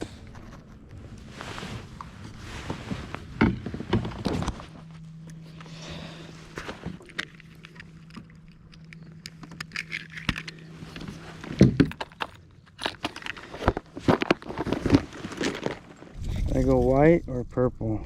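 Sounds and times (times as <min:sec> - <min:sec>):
steady low hum: 0:00.0 - 0:18.0
fishing gear clicking and rattling: 0:03.8 - 0:16.7.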